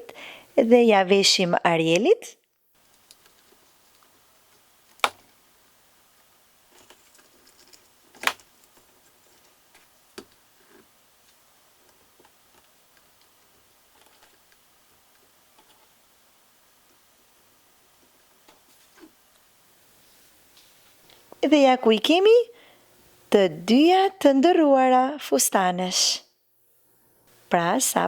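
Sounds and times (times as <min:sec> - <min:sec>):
plastic clips clicking: 0:04.9 - 0:05.2.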